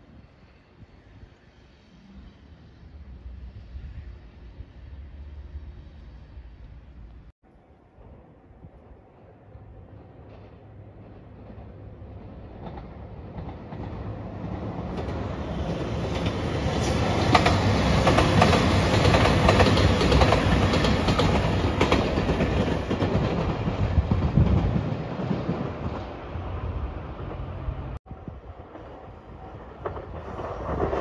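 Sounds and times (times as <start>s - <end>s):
diesel train passing: 0.0s - 31.0s
wheels clacking over rail joints: 10.1s - 26.2s.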